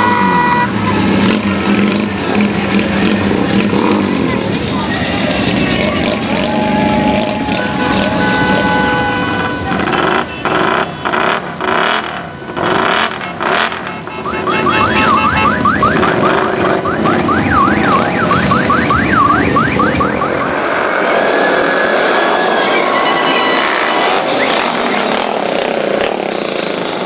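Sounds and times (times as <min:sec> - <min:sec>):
motorcycle engines running: 0:00.0 - 0:27.0
vehicle alarm whooping: 0:04.9 - 0:20.6, 0:21.4 - 0:25.2.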